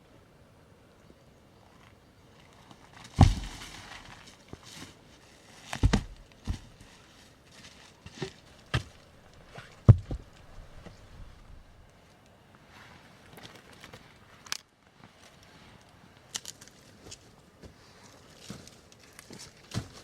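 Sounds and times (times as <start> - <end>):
rustling and handling noise: 2.4 - 20.0
heavy knocks: 5.8 - 6.7, 8.7 - 11.8.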